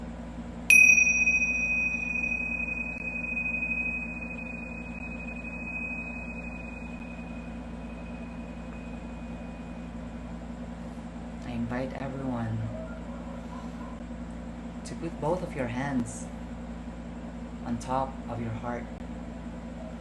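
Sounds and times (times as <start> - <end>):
faint low hum: 0.0 - 20.0
bell ringing with high clear tone: 0.7 - 10.0.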